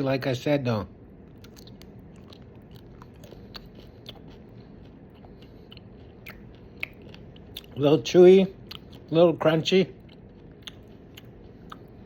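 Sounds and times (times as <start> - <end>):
person chewing crunchy snack: 1.2 - 7.8, 8.5 - 9.2, 9.9 - 12.0.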